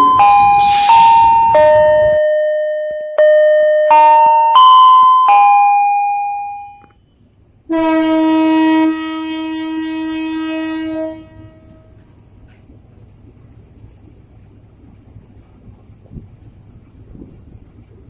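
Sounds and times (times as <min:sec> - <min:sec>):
station chime: 0:00.0 - 0:06.9
low engine rumble: 0:06.9 - 0:18.0
locomotive horn blast: 0:07.7 - 0:12.0.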